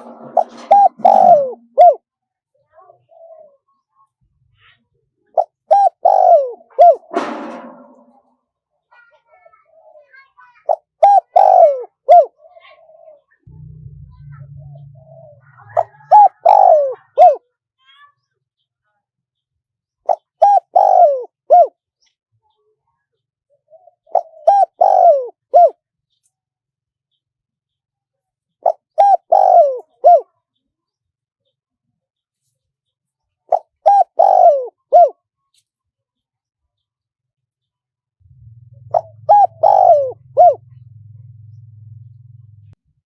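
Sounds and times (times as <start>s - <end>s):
dove cooing: 0.0s - 2.0s, 2.9s - 3.8s, 5.4s - 8.1s, 9.6s - 17.4s, 20.1s - 21.7s, 23.7s - 25.8s, 28.6s - 30.3s, 33.5s - 35.2s, 38.4s - 42.8s.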